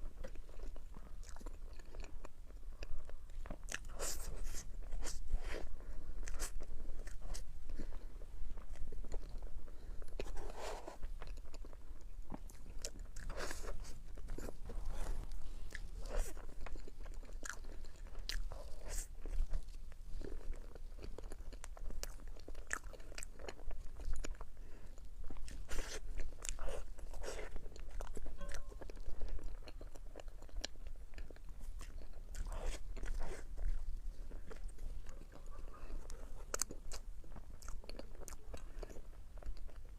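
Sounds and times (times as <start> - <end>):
biting and chewing crunches: 0.0 - 39.9
low steady hum: 0.0 - 39.9.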